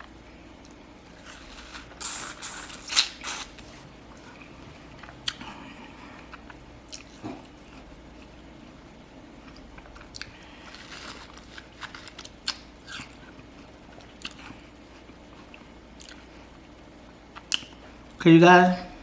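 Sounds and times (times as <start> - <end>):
person eating watermelon: 1.1 - 8.3, 9.4 - 16.4.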